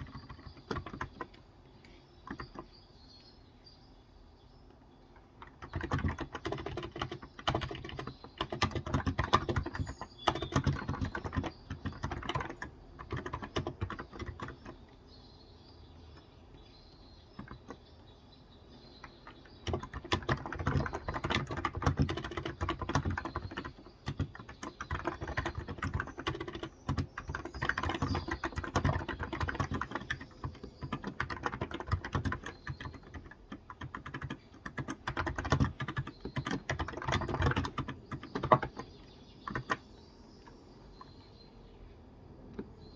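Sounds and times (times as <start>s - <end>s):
keyboard typing: 0.0s - 2.7s, 5.2s - 15.0s, 17.3s - 17.8s, 19.0s - 39.9s
faint birds chirping: 0.0s - 42.9s.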